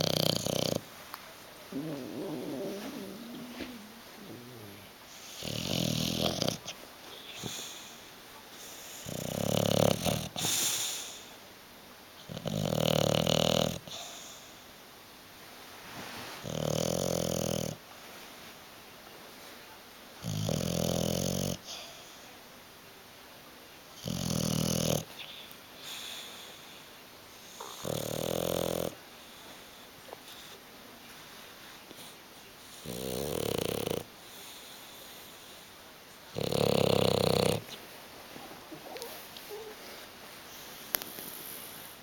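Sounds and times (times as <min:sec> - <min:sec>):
dog snoring: 0:00.0 - 0:00.9, 0:01.7 - 0:07.9, 0:09.0 - 0:10.7, 0:12.2 - 0:14.2, 0:16.4 - 0:17.8, 0:20.2 - 0:21.8, 0:24.0 - 0:25.2, 0:27.5 - 0:29.0, 0:32.7 - 0:34.7, 0:36.3 - 0:37.8.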